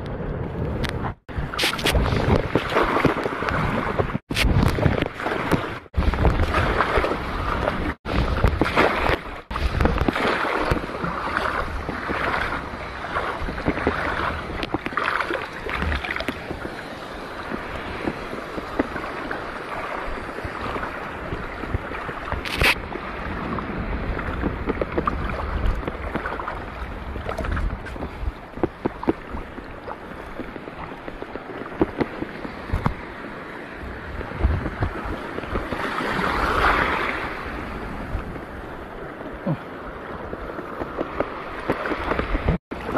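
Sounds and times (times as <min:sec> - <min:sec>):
wind buffeting microphone: 0:00.0 - 0:42.9
seawater sloshing and lapping: 0:01.5 - 0:23.1, 0:24.2 - 0:33.0.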